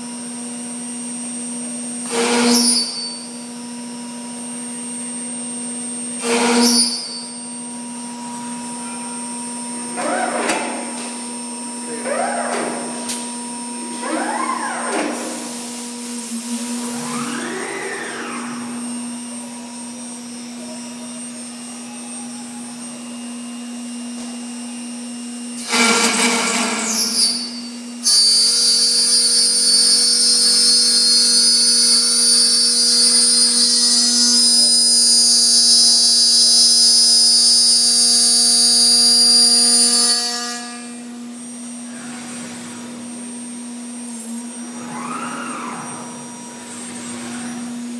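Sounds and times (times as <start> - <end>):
high-pitched spindle whine: 6.1 - 23.6, 42.7 - 47.9
axis drives whining: 7.6 - 23.9, 41.6 - 47.9
machine hum: 7.7 - 24.0, 41.5 - 47.9.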